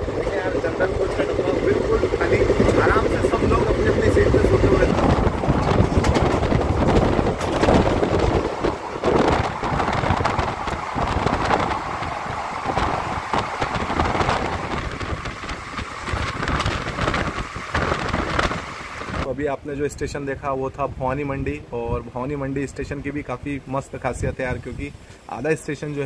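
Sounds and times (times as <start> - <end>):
train rumbling: 0.0 - 19.3
wheels clacking: 0.0 - 19.3
wind buffeting microphone: 0.0 - 25.1.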